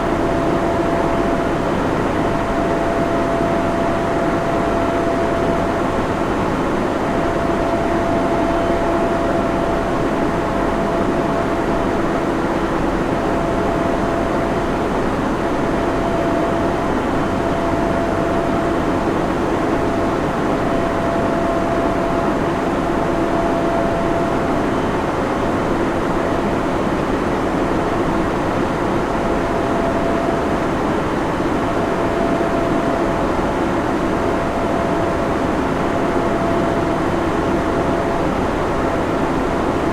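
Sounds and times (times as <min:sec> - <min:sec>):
thin hum tone: 0:00.0 - 0:26.6
cooling fans whirring: 0:00.0 - 0:39.9.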